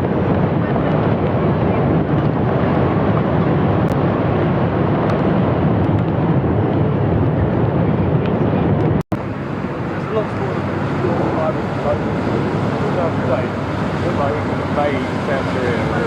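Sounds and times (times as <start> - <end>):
rumble of vehicle engines: 0.0 - 16.0
wind noise on microphone: 0.0 - 16.0.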